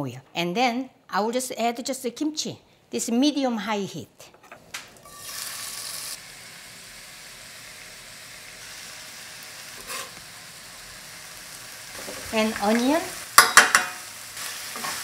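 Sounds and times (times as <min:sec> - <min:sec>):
kimchi sizzling in oil: 0:05.0 - 0:15.0.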